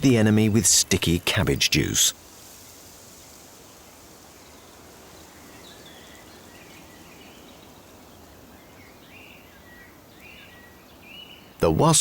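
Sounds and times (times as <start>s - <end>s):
steady outdoor hiss: 0.0s - 12.0s
faint bird chirps: 3.6s - 11.8s.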